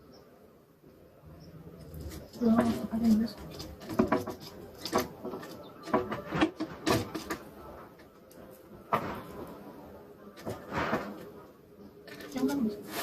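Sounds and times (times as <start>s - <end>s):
scraping or rustling: 1.8s - 9.7s, 10.4s - 13.0s
kitchen knocks and clatters: 2.5s - 7.5s.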